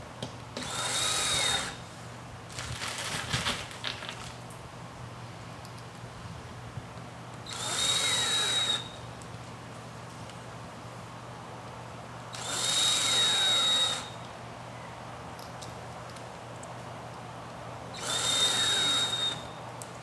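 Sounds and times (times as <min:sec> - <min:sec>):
power drill driving screws: 0:00.6 - 0:01.8, 0:07.5 - 0:09.0, 0:12.3 - 0:14.2, 0:18.0 - 0:19.6.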